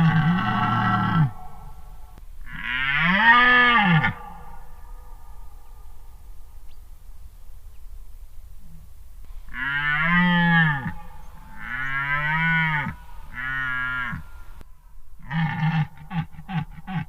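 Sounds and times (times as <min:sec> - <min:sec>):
deer stag roaring: 0:00.0 - 0:05.3, 0:09.5 - 0:14.6.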